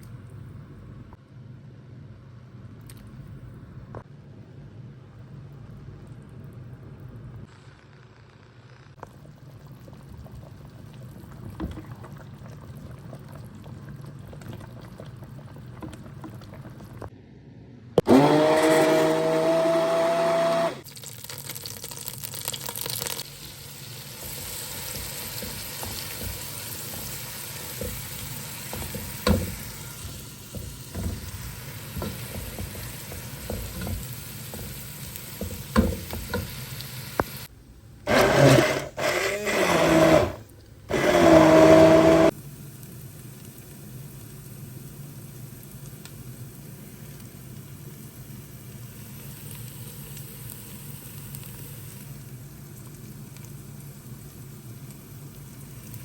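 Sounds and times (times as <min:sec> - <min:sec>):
food sizzling: 0:18.1 - 0:37.5.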